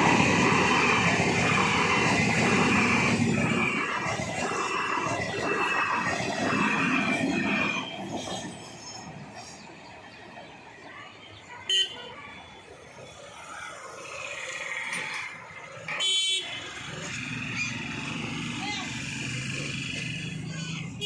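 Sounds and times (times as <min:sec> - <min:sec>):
train rumbling past: 0:00.0 - 0:21.0
vehicle horn toots: 0:16.0 - 0:16.6.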